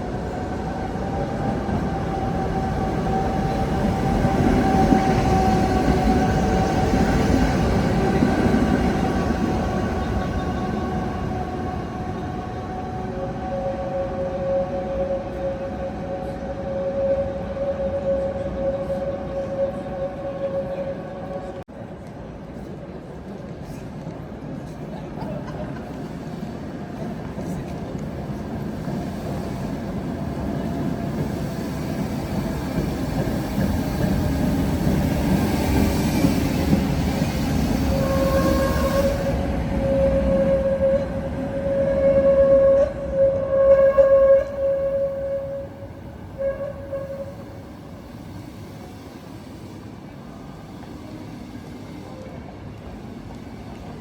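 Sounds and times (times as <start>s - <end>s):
steady tram whine: 0.0s - 21.7s, 26.0s - 54.0s
tram running on track: 0.0s - 54.0s.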